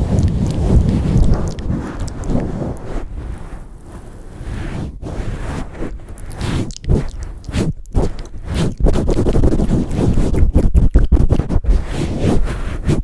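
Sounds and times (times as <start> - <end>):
low rumble: 0.0 - 5.0
hands rustling on microphone: 0.0 - 13.0.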